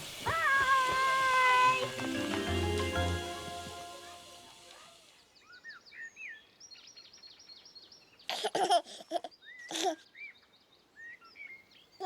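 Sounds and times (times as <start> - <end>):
high child-like giggling: 8.3 - 10.1.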